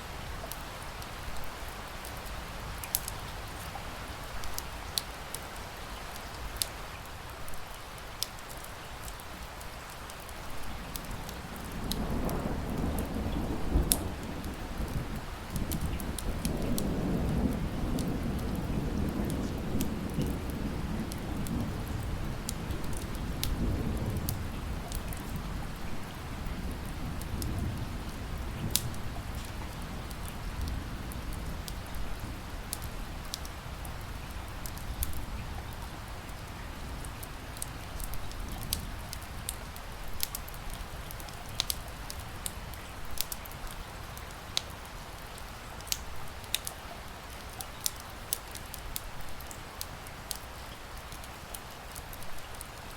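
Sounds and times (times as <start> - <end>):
steady rain: 0.0 - 52.9
thunder rumbling: 11.2 - 36.0
wood fire crackling: 28.6 - 52.9.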